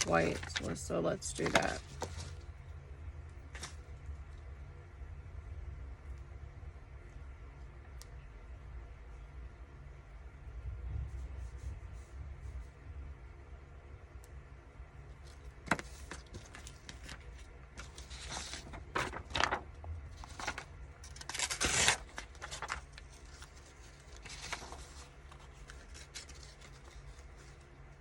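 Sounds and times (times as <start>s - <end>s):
paper rustling and scraping: 0.0s - 2.5s, 3.5s - 3.9s, 15.2s - 27.7s.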